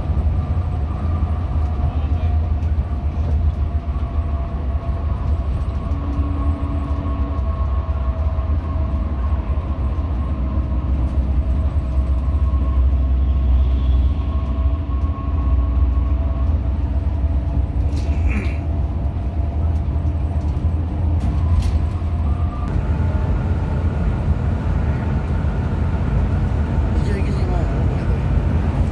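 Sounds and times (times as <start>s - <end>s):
bus diesel engine rumble: 0.0s - 28.9s
faint constant whine: 22.7s - 28.9s.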